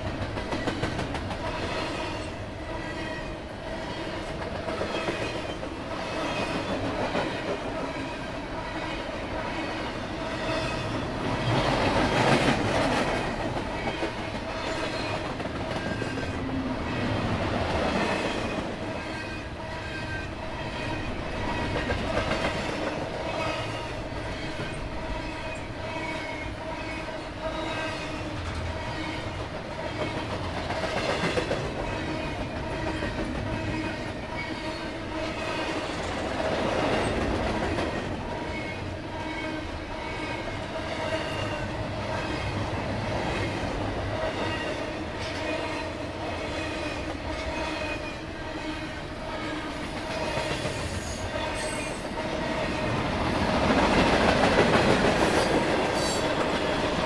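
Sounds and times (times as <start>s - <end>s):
freight train wheels on rails: 0.0s - 57.0s.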